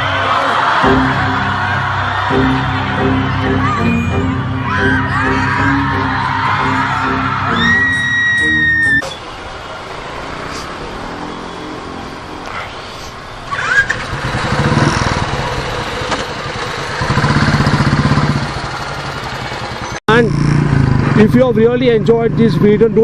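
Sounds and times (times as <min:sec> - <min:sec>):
motorcycle engine running: 0:13.7 - 0:23.0.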